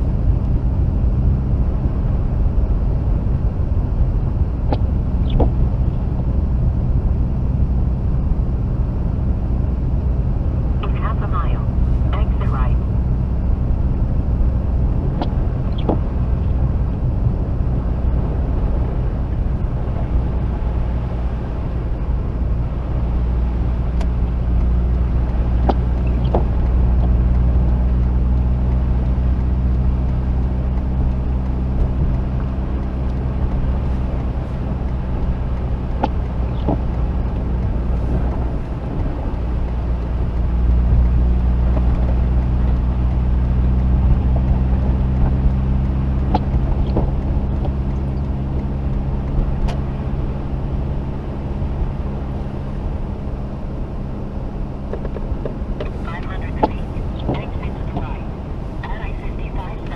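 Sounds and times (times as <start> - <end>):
rotary engine droning: 0.0 - 59.9
faint ticks: 23.9 - 50.2.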